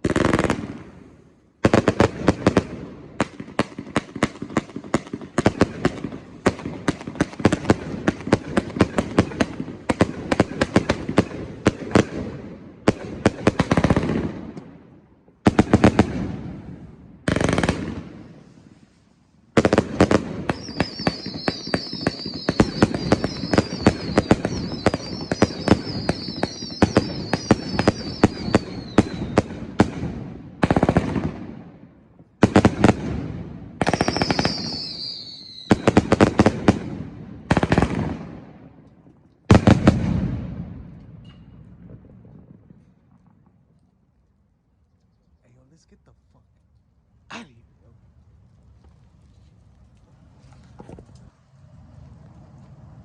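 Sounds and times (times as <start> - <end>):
firework cake crackling reports: 17.3 - 31.6
wavering high whistle: 20.6 - 29.4, 34.0 - 35.7.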